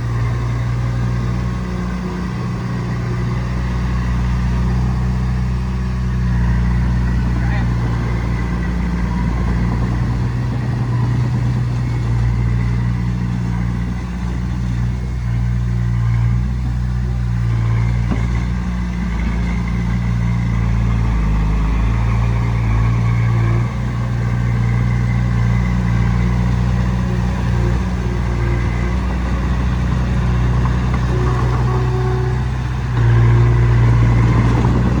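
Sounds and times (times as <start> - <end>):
bulldozer diesel engine running: 0.0 - 35.0.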